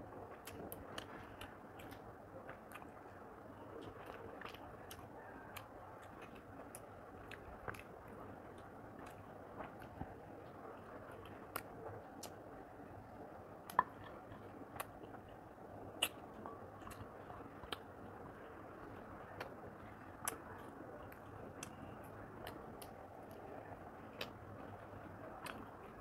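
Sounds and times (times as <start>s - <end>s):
person chewing food: 0.2s - 26.0s
mouth clicks and smacks: 13.6s - 18.2s.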